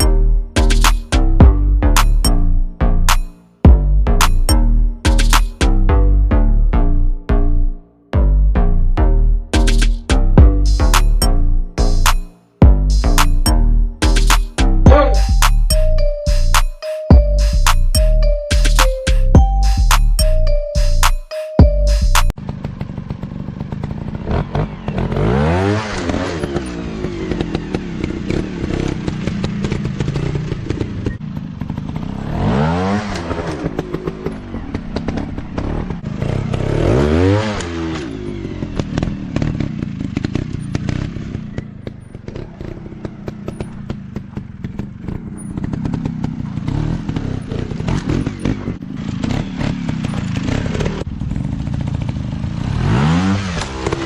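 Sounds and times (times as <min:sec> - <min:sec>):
dirt bike engines revving: 0:22.6 - 0:54.0.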